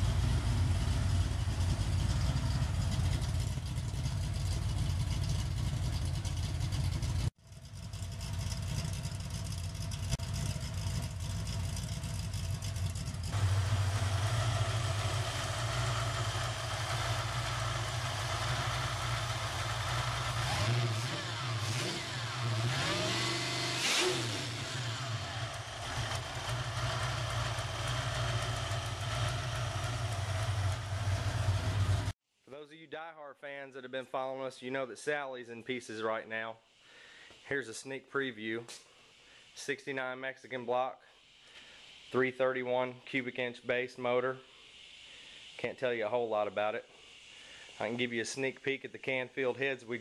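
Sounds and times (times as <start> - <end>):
supercharged engine idling and revving: 0.0 - 32.2.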